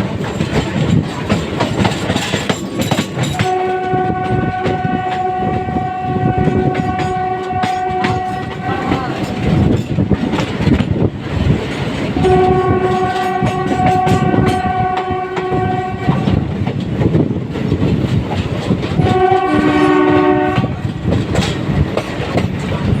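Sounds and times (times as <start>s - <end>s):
train wheels clattering on rails: 0.0s - 23.0s
locomotive horn blasts: 3.4s - 9.6s, 12.2s - 16.4s, 19.0s - 20.8s.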